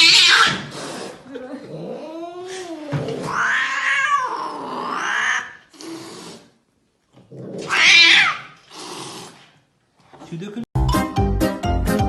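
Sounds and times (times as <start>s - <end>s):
cat yowling: 0.0s - 0.6s, 1.8s - 5.6s, 7.6s - 8.6s.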